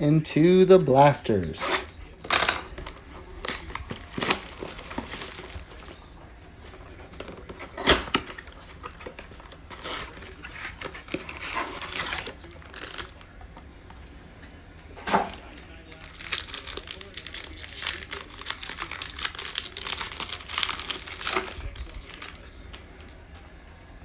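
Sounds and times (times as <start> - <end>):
packaging torn and crinkled: 2.3 - 6.1, 7.6 - 13.3, 15.1 - 22.8.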